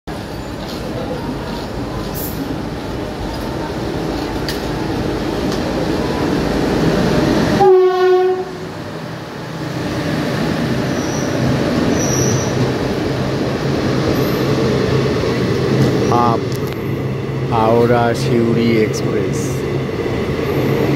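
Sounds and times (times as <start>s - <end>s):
train rumbling past: 0.1s - 20.9s
train horn blast: 7.6s - 8.7s.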